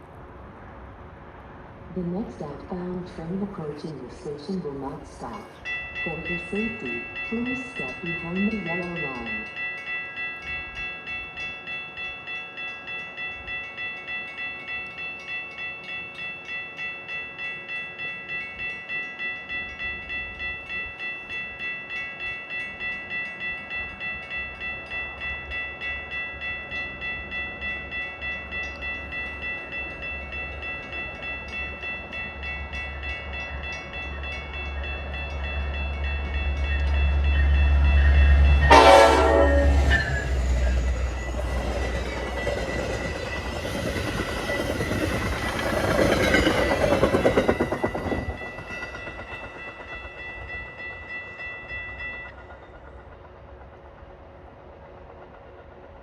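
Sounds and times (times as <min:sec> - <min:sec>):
train rumble: 0:00.0 - 0:09.6, 0:23.2 - 0:56.0
warning bell ringing: 0:03.5 - 0:52.4
train horn blast: 0:38.2 - 0:40.6.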